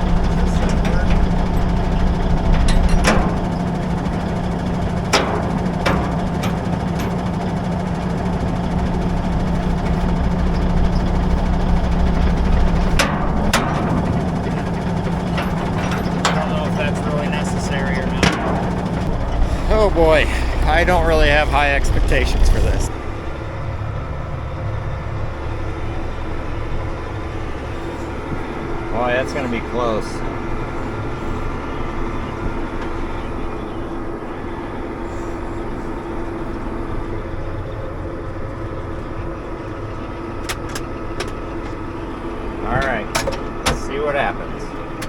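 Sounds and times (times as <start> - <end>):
heavy farm vehicle engine running: 0.0 - 45.0
sharp knocks: 0.7 - 19.7.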